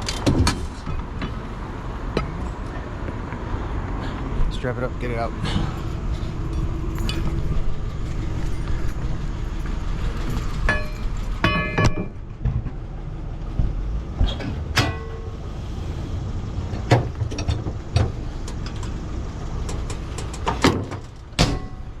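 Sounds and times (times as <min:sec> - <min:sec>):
truck engine rumble: 0:00.0 - 0:22.0
metal clanks and knocks: 0:04.1 - 0:12.9, 0:13.5 - 0:15.4, 0:16.8 - 0:19.0, 0:19.6 - 0:22.0.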